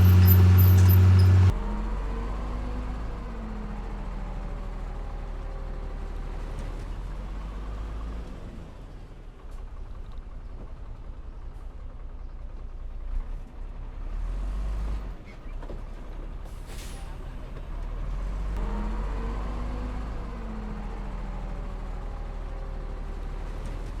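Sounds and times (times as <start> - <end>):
heavy diesel machinery running: 0.0 - 1.6.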